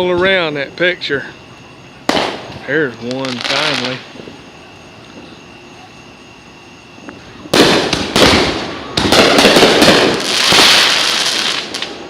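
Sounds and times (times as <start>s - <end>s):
firework bang: 2.0s - 4.4s, 7.3s - 12.0s
firework cracks and crackling: 2.0s - 4.4s, 7.1s - 12.0s.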